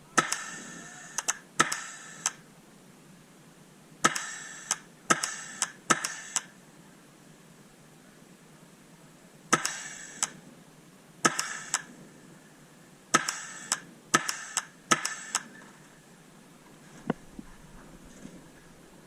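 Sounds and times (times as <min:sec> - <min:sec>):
paintball markers firing: 0:00.2 - 0:02.4, 0:04.0 - 0:06.5, 0:09.5 - 0:10.4, 0:11.2 - 0:11.9, 0:13.1 - 0:15.5.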